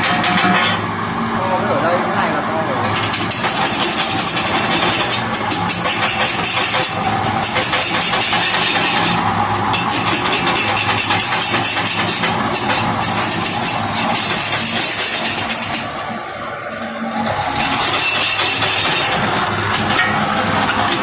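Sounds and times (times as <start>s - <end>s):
wood lathe cutting chatter: 0.0s - 21.0s.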